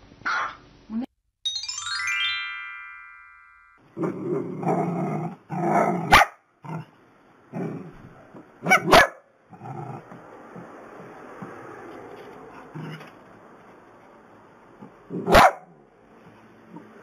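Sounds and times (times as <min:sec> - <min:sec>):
ringing chime: 0:01.4 - 0:03.8
dogs growling and barking: 0:04.0 - 0:11.7, 0:12.5 - 0:13.2, 0:14.8 - 0:15.6.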